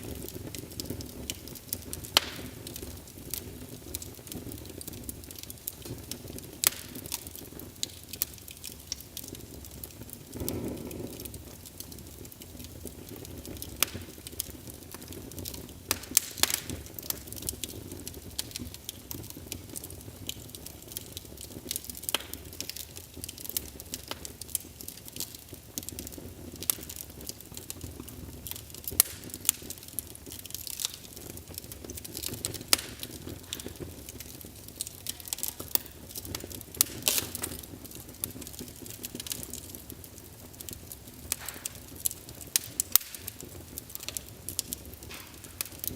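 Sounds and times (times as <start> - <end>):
low rumble of flames: 0.0 - 45.9
wood fire crackling and popping: 0.0 - 45.9.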